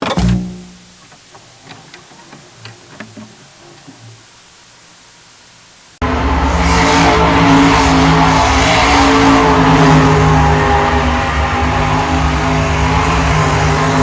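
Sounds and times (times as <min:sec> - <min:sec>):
tyres squealing on pavement: 0:00.0 - 0:05.2, 0:08.0 - 0:14.0
truck engine revving high: 0:06.0 - 0:14.0.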